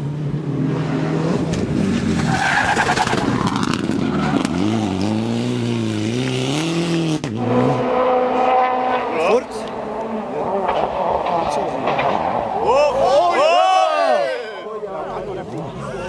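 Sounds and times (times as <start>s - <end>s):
rally car engine revving: 0.0s - 13.0s
tyres skidding and scrabbling: 1.3s - 5.8s, 7.2s - 13.3s.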